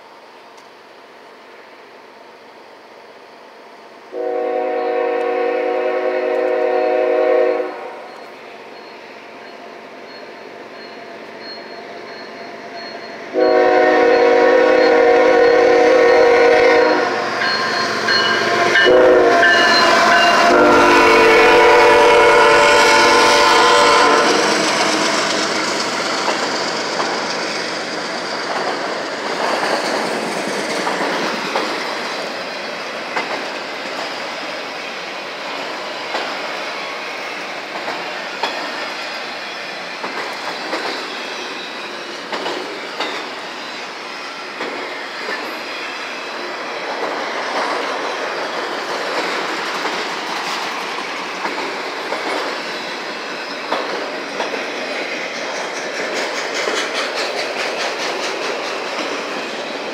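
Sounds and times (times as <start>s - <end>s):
rumble of train wheels on rail: 0.0s - 59.9s
wheels clicking over rail joints: 23.1s - 34.3s, 35.5s - 36.6s, 37.6s - 39.0s, 40.0s - 43.4s, 46.8s - 59.9s.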